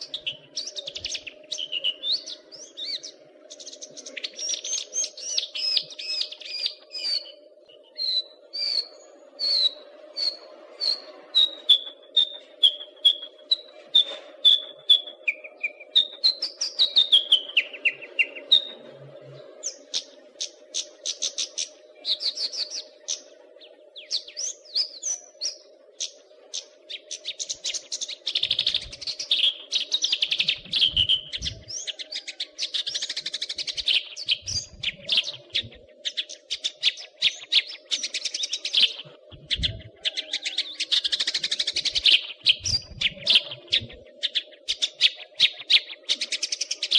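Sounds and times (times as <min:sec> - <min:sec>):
songbird singing: 0:00.0 - 0:46.9
steady low hum: 0:30.1 - 0:32.0, 0:33.6 - 0:37.2, 0:38.9 - 0:40.1, 0:41.8 - 0:44.6.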